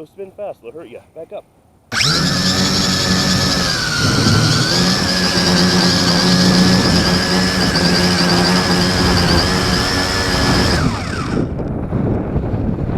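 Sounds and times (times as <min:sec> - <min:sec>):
drone motors whining: 0:01.9 - 0:11.6
wind buffeting microphone: 0:01.9 - 0:12.9.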